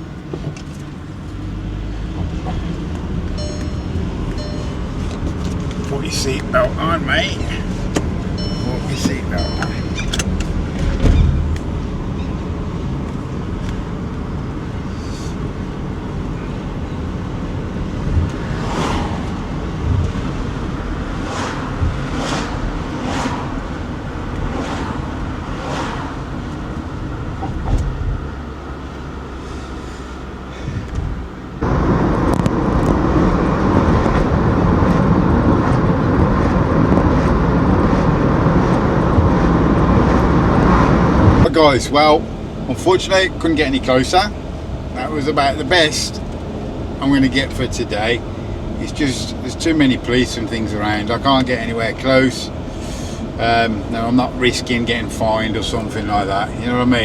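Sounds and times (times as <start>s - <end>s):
car road and engine noise: 0.0s - 57.0s
short whooshes: 21.2s - 23.8s.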